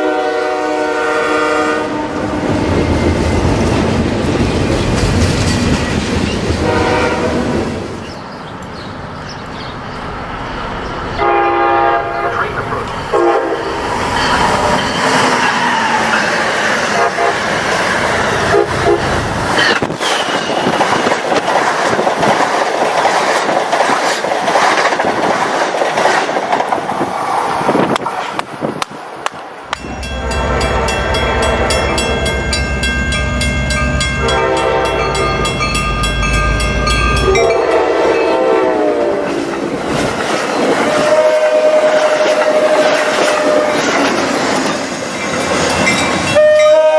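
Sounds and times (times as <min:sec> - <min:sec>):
locomotive horn blasts: 0:00.0 - 0:02.2, 0:06.6 - 0:07.5, 0:11.2 - 0:13.8, 0:16.9 - 0:17.5, 0:18.4 - 0:19.2, 0:29.8 - 0:32.3, 0:34.1 - 0:35.5, 0:37.2 - 0:39.3, 0:40.9 - 0:43.9, 0:46.3 - 0:46.9
rolling train noise: 0:00.0 - 0:46.9.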